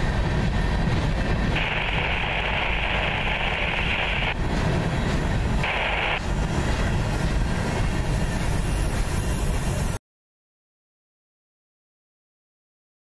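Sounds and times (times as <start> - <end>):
freight train rolling past: 0.0 - 10.0
higher hiss: 1.6 - 4.4, 5.6 - 6.2.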